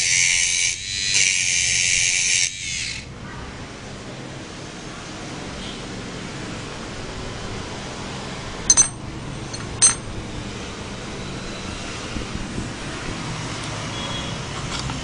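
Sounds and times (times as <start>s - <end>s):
sharp metallic clinks: 8.7s - 10.2s.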